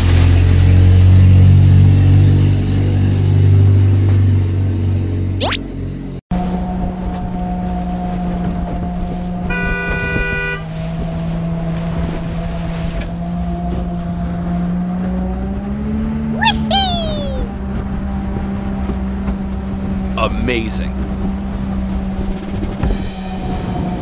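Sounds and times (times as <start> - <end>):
boat motor drone: 1.0 - 16.4, 17.5 - 20.2, 20.9 - 24.0
ship's horn blast: 9.4 - 11.0.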